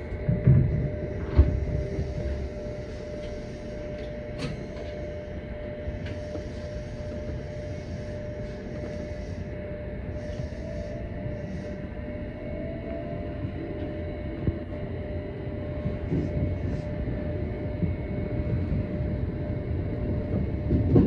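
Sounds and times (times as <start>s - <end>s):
wheels rumbling on rails: 0.0s - 9.2s, 10.1s - 21.0s
steady hum: 0.0s - 21.0s.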